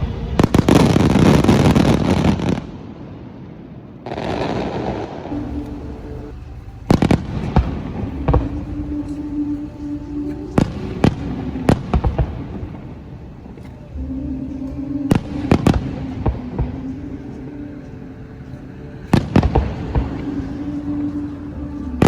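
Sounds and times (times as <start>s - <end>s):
fireworks bangs: 0.0s - 13.9s
fireworks crackling and rumbling: 0.0s - 14.0s, 19.0s - 22.0s.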